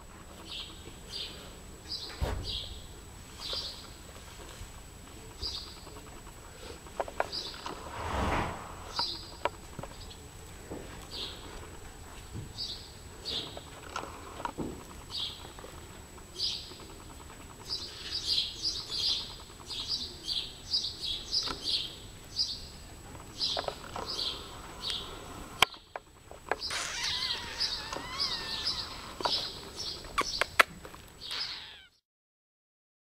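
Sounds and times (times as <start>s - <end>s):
small birds chirping: 0.4s - 4.1s, 5.3s - 7.8s, 15.0s - 32.0s
bird warbling calls: 26.6s - 30.5s, 31.2s - 32.0s.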